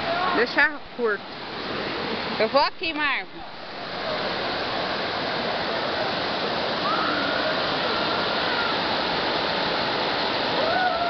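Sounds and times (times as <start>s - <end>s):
waterfall crashing: 3.5s - 11.0s.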